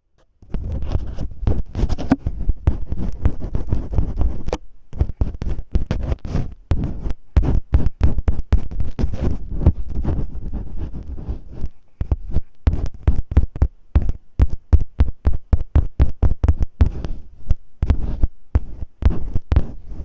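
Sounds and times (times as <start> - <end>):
tape crackling on microphone: 0.4 - 20.0
deep thumps: 12.0 - 20.0.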